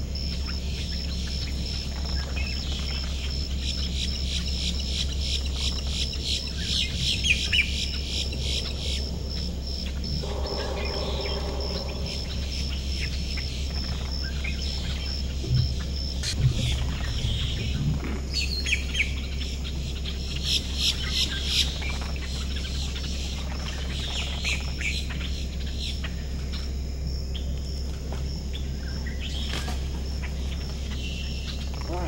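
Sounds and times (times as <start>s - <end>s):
wild birds chirping: 0.0s - 32.0s
low hum: 5.4s - 21.1s.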